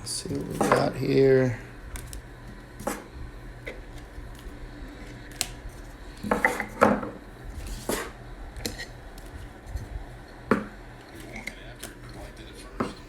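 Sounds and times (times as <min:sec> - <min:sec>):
trading cards being handled: 0:01.9 - 0:03.1, 0:03.8 - 0:06.8.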